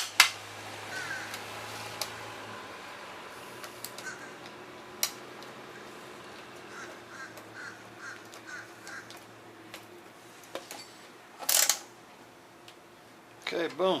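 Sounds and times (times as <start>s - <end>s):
bird calling faintly: 0.8s - 1.5s, 3.8s - 4.6s, 6.6s - 9.3s.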